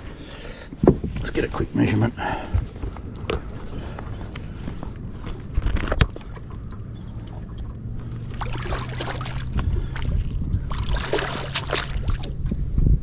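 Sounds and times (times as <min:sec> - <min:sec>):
low steady hum: 0:00.0 - 0:13.0
fish handling noise: 0:02.3 - 0:12.6.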